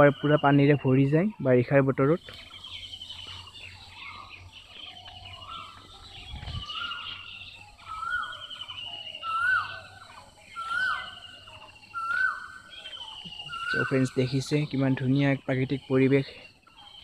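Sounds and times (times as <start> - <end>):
bird high trilling call: 2.1 - 17.0
bird repeating rising-falling call: 2.6 - 14.8.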